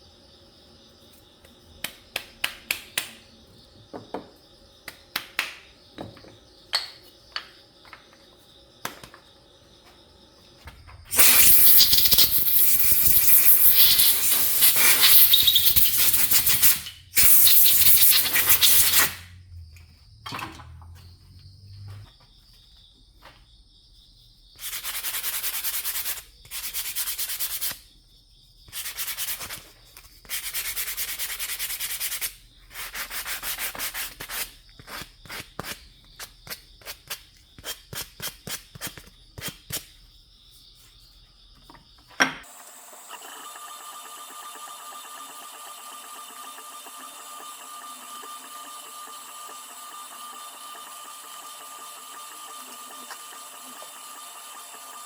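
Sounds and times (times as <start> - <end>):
sandpaper rubbing on wood: 11.2 - 19.2, 24.6 - 27.8, 30.3 - 35.8.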